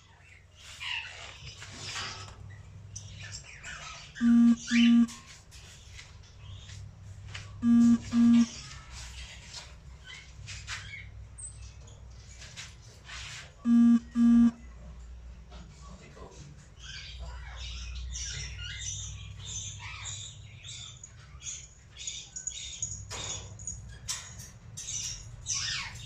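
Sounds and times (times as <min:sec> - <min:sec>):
buzzy double beeps: 0:04.2 - 0:05.1, 0:07.6 - 0:08.5, 0:13.7 - 0:14.6.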